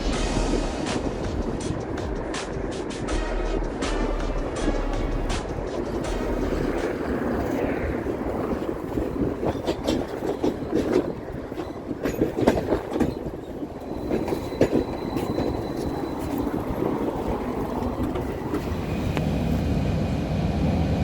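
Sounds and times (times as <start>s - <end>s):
tram wheels rumbling on rails: 0.0s - 21.0s
wheels knocking over rail joints: 8.5s - 16.4s.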